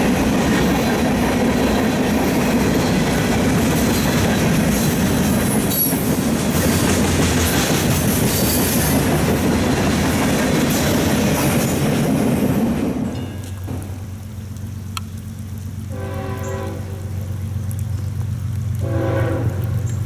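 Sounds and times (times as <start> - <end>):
train wheels rolling over rails: 0.0 - 14.5.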